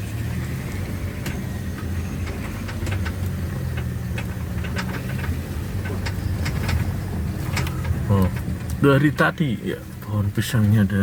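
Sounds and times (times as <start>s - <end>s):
engine running at low speed: 0.0s - 11.0s
sharp clicks and knocks: 0.7s - 9.3s.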